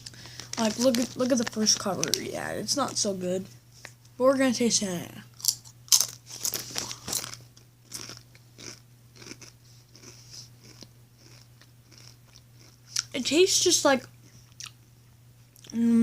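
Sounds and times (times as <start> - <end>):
crunching tortilla chip: 5.4 - 13.1.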